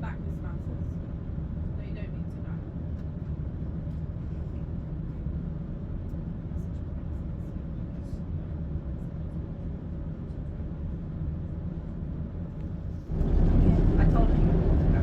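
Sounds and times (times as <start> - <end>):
train diesel engine drone: 8.2 - 15.0.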